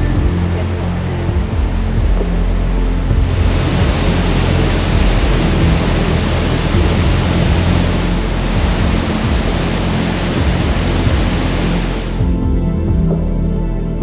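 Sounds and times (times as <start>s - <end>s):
waterfall roaring: 3.2s - 12.2s.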